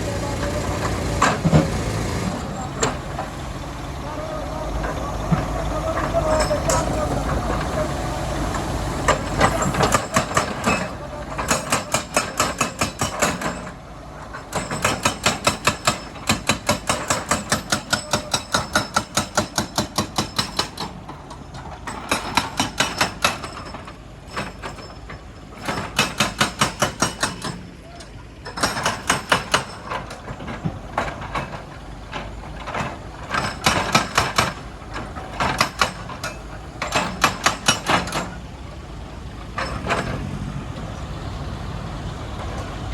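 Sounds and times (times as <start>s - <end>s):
hydraulic breaker hammering stone: 0.0s - 3.3s, 9.0s - 13.8s, 14.4s - 38.4s
diesel engine running: 0.0s - 42.9s.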